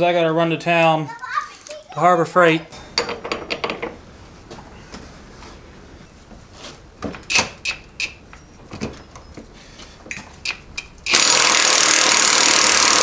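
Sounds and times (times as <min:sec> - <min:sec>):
tools clinking on metal: 0:02.5 - 0:04.0
loud power tool running: 0:10.8 - 0:13.0.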